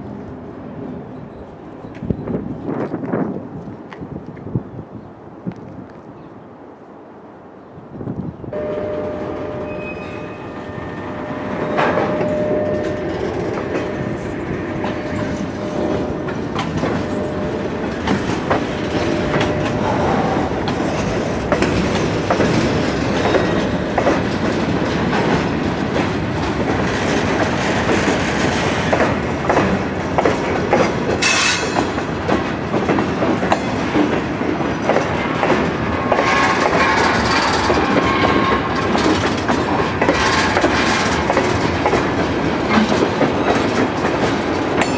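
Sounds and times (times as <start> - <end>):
train wheels clattering over rails: 11.0 - 44.9.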